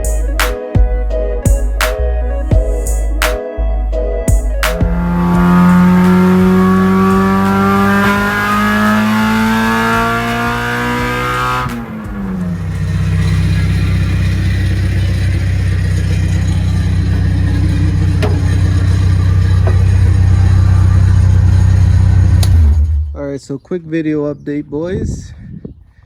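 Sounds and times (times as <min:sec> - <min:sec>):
car engine accelerating: 0:04.6 - 0:23.2.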